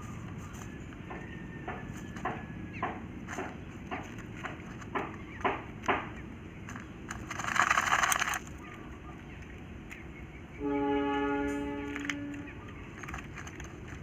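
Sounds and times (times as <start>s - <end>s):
quail fluttering in sand: 6.6s - 8.9s, 12.7s - 14.0s
steady horn-like tone: 10.6s - 12.5s.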